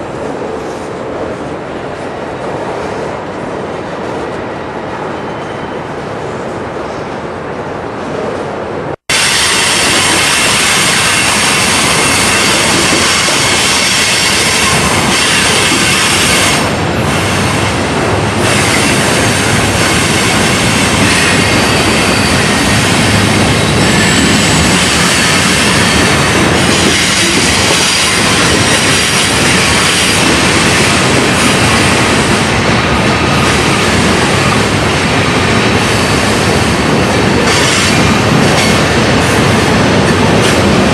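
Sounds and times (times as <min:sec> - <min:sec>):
train cars rumbling by: 0:00.0 - 0:40.9
steel wheels squealing: 0:20.9 - 0:30.2.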